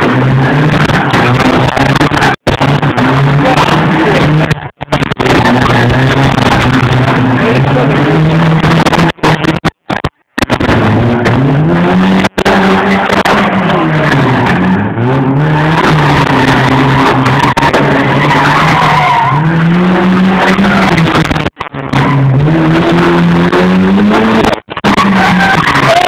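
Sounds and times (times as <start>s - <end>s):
car engine revving: 0.0s - 26.0s
tyres squealing: 11.3s - 26.0s.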